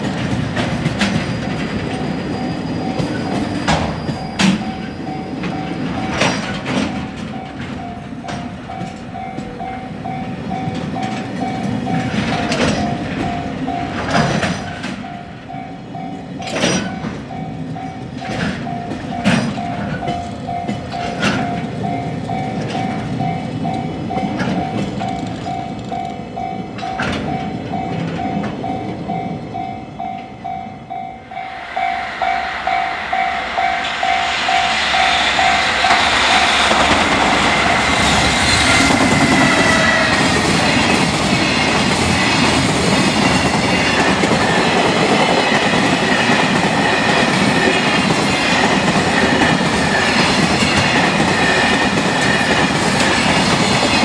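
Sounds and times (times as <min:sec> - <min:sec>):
wheels clacking over rail joints: 0:00.0 - 0:15.2, 0:16.0 - 0:30.2
crossing bell ringing: 0:00.0 - 0:54.0
freight train approaching: 0:00.0 - 0:54.0
freight train rolling: 0:00.0 - 0:54.0.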